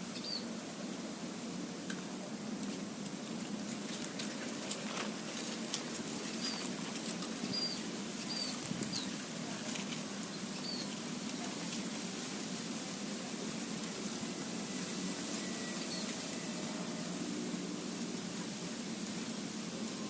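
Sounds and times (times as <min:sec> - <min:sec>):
small bird chirping: 0:00.2 - 0:00.5, 0:07.5 - 0:09.1, 0:10.3 - 0:10.9.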